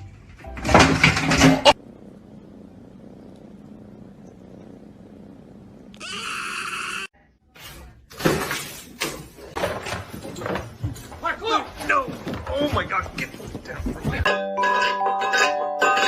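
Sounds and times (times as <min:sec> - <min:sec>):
animal's drawn-out cry: 0:06.0 - 0:07.1.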